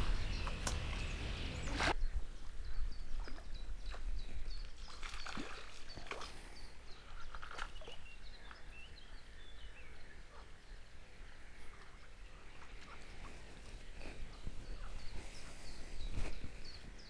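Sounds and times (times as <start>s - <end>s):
small bird chirping: 0.1s - 10.9s.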